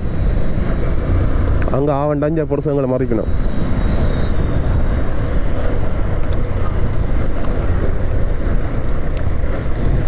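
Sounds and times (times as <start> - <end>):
road noise: 0.0 - 10.0
wind buffeting microphone: 0.0 - 10.0.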